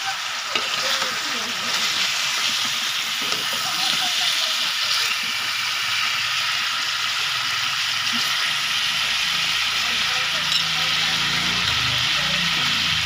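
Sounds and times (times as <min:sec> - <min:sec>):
seafood sizzling in wok: 0:00.0 - 0:13.0
metal spatula stirring: 0:00.5 - 0:05.4.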